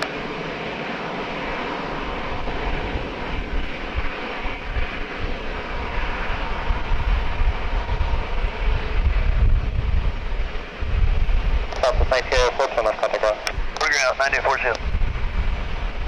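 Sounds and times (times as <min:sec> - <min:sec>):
aircraft engines rushing: 0:00.0 - 0:16.0.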